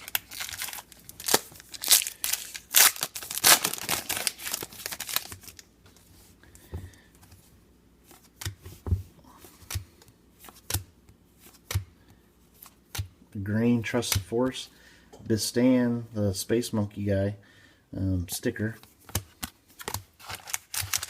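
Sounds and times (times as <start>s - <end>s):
foil wrapper crinkling and tearing: 0.0s - 5.7s, 20.2s - 21.0s.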